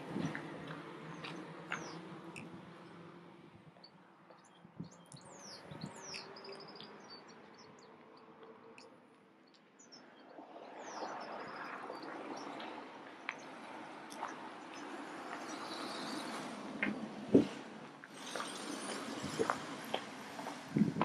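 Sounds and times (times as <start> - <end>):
small songbirds chirping: 0.1 - 3.1, 3.8 - 16.6.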